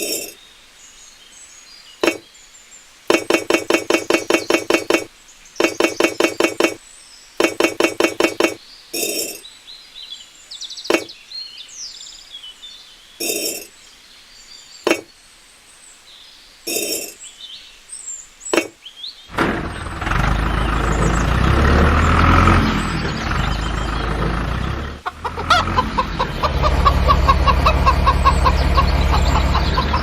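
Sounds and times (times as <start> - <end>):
faint bird chirps: 0.0 - 19.3
tool tapping hard material: 2.0 - 2.2, 3.1 - 6.8, 7.4 - 8.6.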